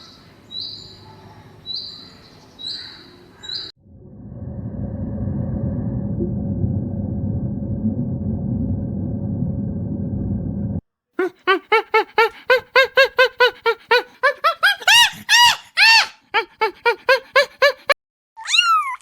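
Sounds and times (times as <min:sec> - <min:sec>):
steady low rumble: 0:03.8 - 0:10.8
animal calling in short cries: 0:14.9 - 0:16.2.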